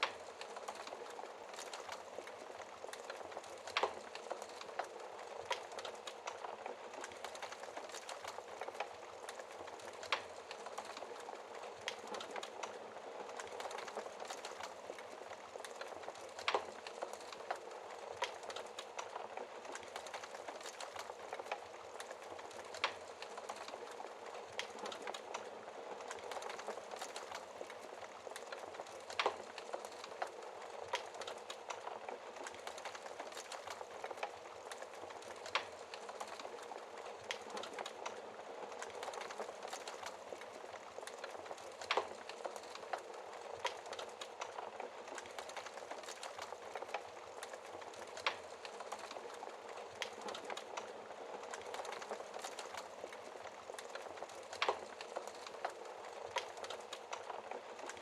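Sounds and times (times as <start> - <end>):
fire crackling and popping: 0.0 - 58.0
wood fire hissing: 0.0 - 58.0.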